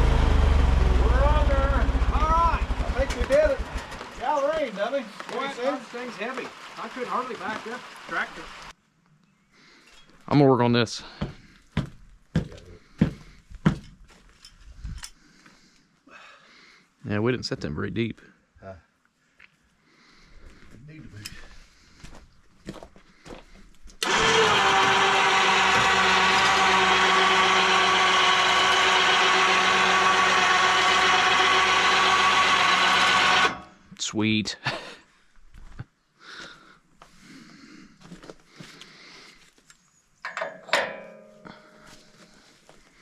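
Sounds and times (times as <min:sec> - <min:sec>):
power tool motor running: 0:00.0 - 0:03.9, 0:24.0 - 0:33.8
knocks and metallic clinks: 0:40.2 - 0:41.9.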